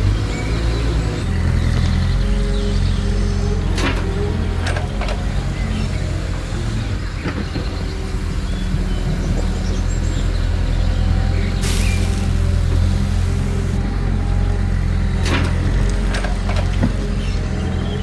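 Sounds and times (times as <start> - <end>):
low motor hum: 8.0 - 18.0
short burst of hiss: 11.6 - 13.8.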